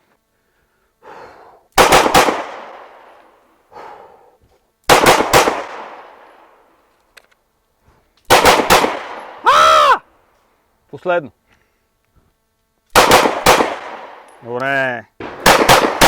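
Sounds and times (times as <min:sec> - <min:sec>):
pistol shots with echo: 0:01.8 - 0:03.1, 0:04.9 - 0:06.3, 0:08.3 - 0:09.4, 0:13.0 - 0:14.3, 0:15.2 - 0:16.0.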